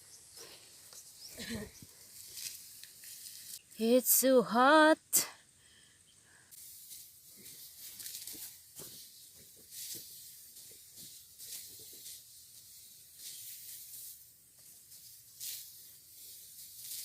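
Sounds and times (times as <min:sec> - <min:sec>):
rice stalks being cut by hand: 0:02.0 - 0:03.7, 0:06.6 - 0:17.0.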